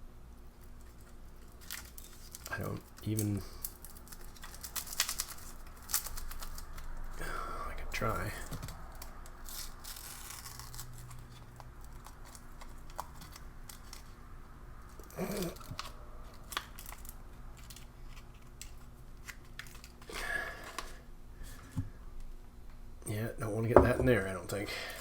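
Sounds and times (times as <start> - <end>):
packet crinkling: 0.8 - 6.9, 8.5 - 14.2, 15.0 - 20.1.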